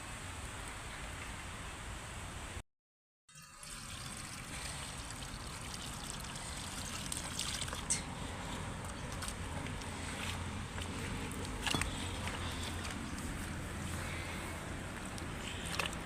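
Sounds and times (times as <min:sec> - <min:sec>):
water trickling and pouring: 0:03.3 - 0:10.1.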